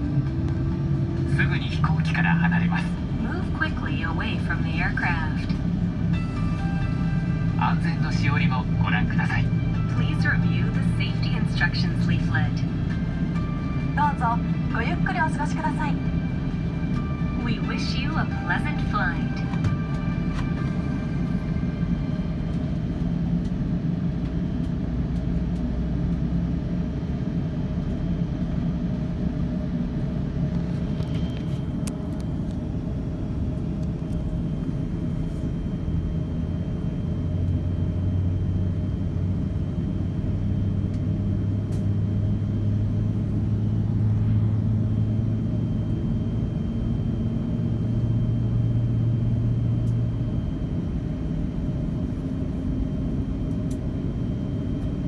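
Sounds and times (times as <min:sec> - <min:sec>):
aircraft cabin rumble: 0:00.0 - 0:55.0.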